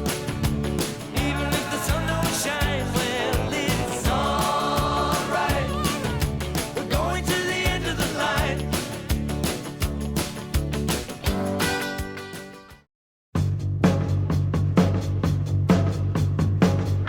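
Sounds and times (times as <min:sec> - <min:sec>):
country-rock song with drums and guitar: 0:00.0 - 0:12.8
person singing: 0:01.1 - 0:09.0.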